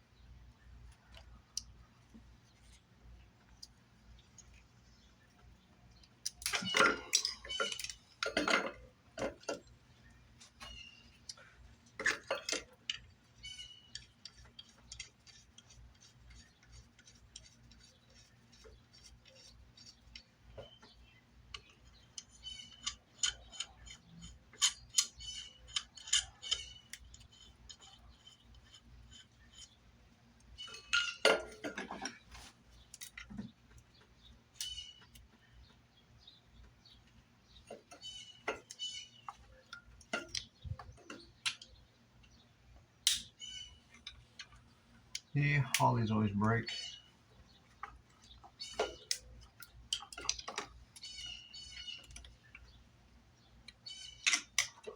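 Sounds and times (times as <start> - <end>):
hand tools clicking and clattering: 6.3 - 9.7, 10.5 - 17.9.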